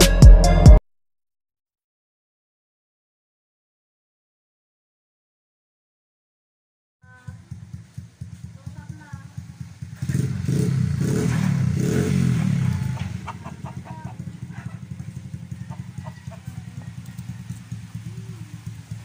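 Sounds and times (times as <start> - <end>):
motorcycle engine idling: 7.0 - 19.0
hens clucking: 12.5 - 19.0.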